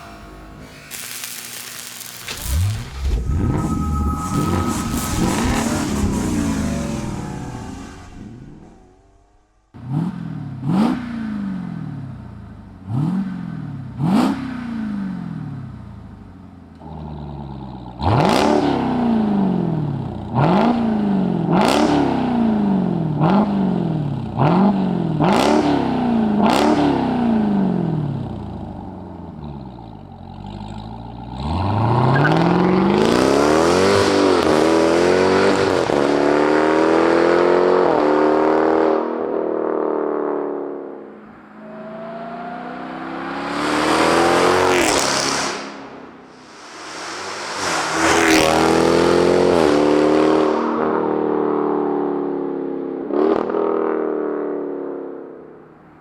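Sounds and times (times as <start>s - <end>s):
car engine revving: 0.0s - 19.7s, 28.6s - 50.7s.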